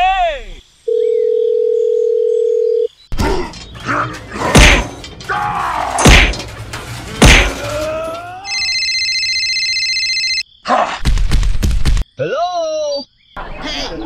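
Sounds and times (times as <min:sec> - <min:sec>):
heavy thumps: 0:03.2 - 0:08.3
strained falling groan: 0:03.2 - 0:08.6
clatter: 0:03.4 - 0:08.2
phone ringtone pulsing tones: 0:08.5 - 0:10.5.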